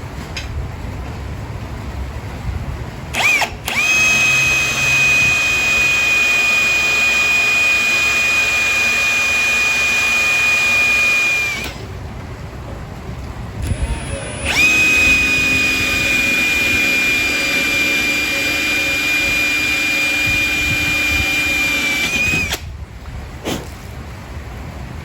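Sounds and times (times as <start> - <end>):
electric motor whining: 3.1 - 11.9, 13.6 - 22.7.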